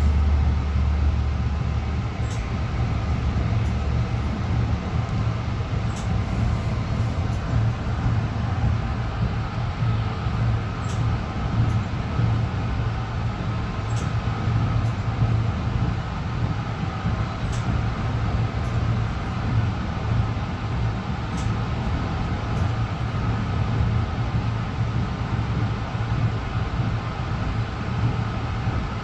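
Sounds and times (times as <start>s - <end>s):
railcar hum and rumble: 0.0s - 29.0s.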